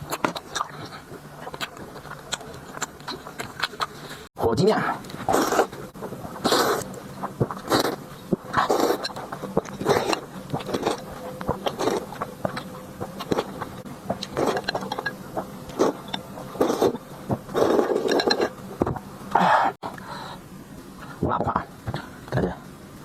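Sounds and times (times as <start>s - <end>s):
person chewing and biting food: 0.0s - 4.3s, 5.1s - 19.1s.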